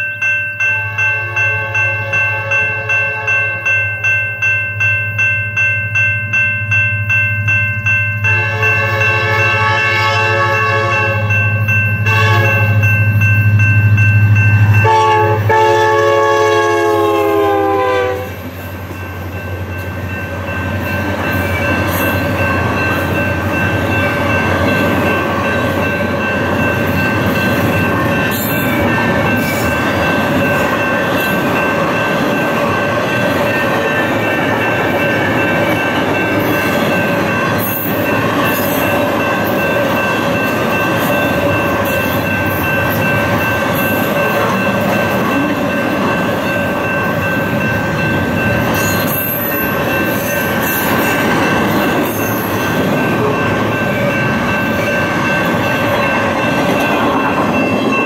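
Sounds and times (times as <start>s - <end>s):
train wheels rumbling on rails: 7.0s - 58.0s
locomotive air horn blowing: 8.3s - 11.3s, 12.0s - 12.8s, 14.8s - 18.4s.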